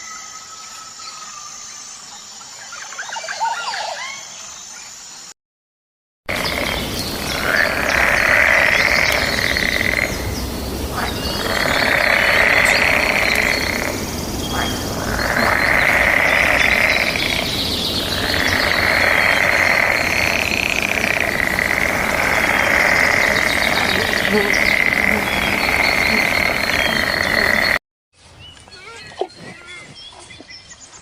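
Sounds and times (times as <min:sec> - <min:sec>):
buzzing animal chorus: 0:06.3 - 0:27.8
steady high buzz: 0:06.3 - 0:27.8.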